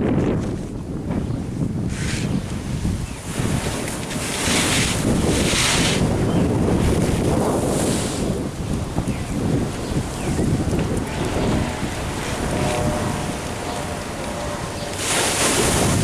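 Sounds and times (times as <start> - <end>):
wind buffeting microphone: 0.0 - 16.0
ocean waves: 2.5 - 16.0.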